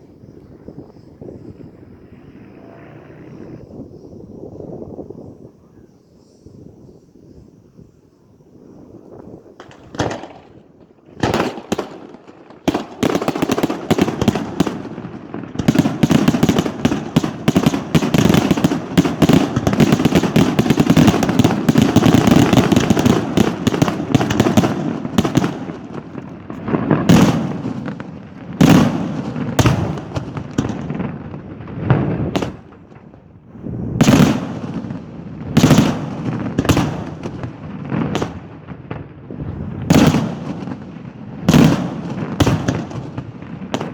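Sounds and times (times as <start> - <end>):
fireworks bangs and crackling: 8.9 - 43.9.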